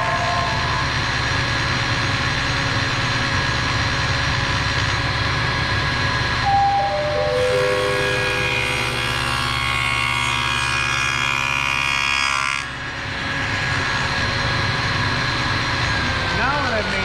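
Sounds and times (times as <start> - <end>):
table saw running: 0.0 - 17.0
saw cutting wood: 7.3 - 14.4.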